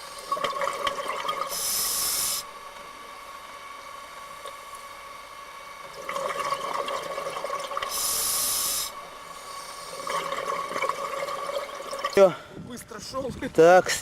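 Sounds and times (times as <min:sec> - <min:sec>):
water bubbles crackling: 0:00.0 - 0:02.4, 0:05.8 - 0:12.3
faint steady hum: 0:00.0 - 0:14.0
scuba breathing underwater: 0:01.5 - 0:02.5, 0:07.9 - 0:10.2
air hissing: 0:01.5 - 0:02.6, 0:07.9 - 0:10.0.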